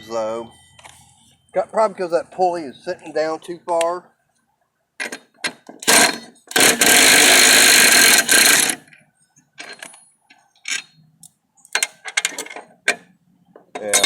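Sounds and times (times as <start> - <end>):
loud mechanical whirring: 5.8 - 8.8.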